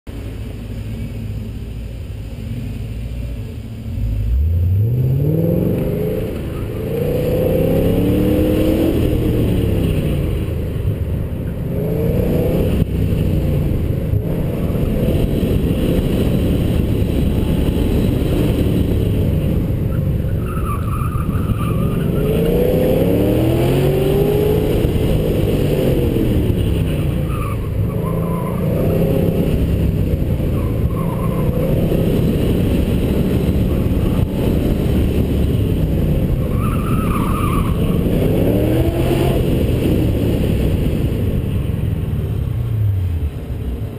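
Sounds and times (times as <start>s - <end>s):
car engine revving: 0.2s - 41.7s
tyre squeal: 19.9s - 22.5s, 36.4s - 38.0s.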